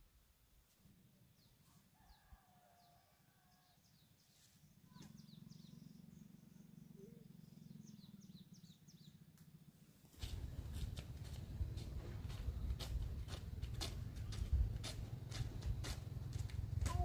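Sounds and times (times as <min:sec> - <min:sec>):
small birds chirping: 0:03.7 - 0:09.5.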